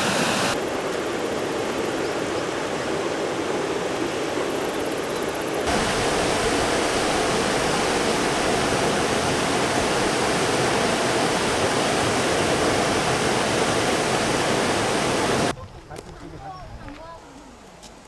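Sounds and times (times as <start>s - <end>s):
stream water rushing: 0.0s - 15.5s.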